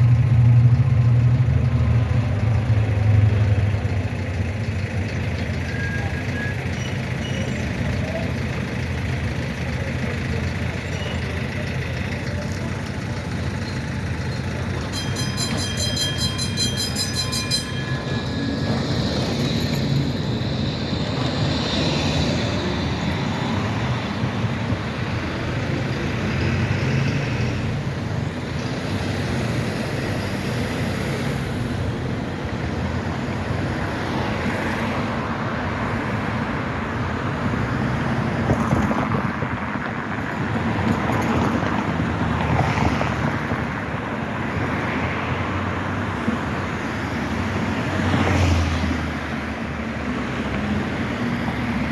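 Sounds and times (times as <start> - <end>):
traffic noise: 0.0 - 51.9
tram rumbling along street: 0.0 - 51.9
high ringing tone: 11.8 - 24.4.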